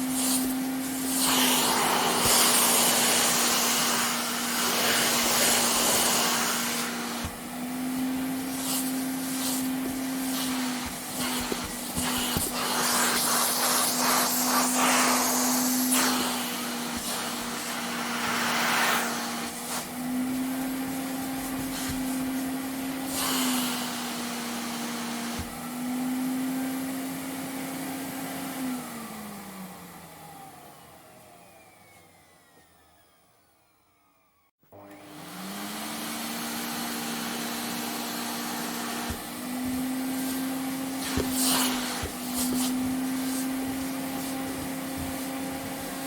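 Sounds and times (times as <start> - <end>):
vacuum cleaner running: 0.0 - 46.0
vacuum motor winding down: 28.6 - 46.0.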